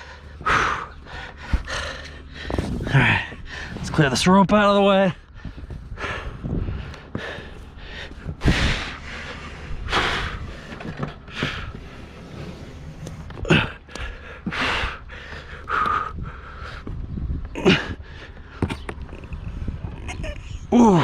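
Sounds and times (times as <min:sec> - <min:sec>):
man breathing hard: 0:00.0 - 0:03.8, 0:05.2 - 0:12.1, 0:13.4 - 0:18.8
dull handling thumps: 0:00.5 - 0:04.3.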